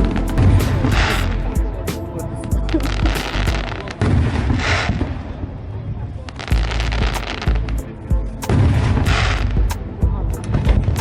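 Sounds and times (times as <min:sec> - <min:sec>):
fireworks bursting with bangs: 0:06.4 - 0:07.7, 0:08.4 - 0:09.8.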